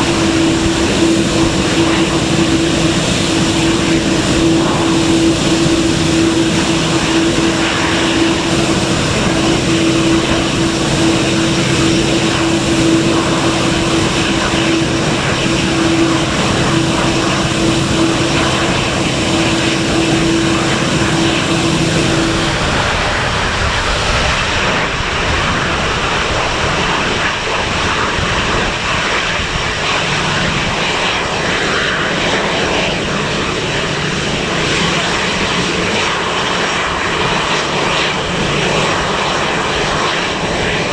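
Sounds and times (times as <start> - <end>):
humming tone: 0.0 - 29.1
low hum: 0.0 - 34.9
airplane engines at high power: 0.0 - 40.9.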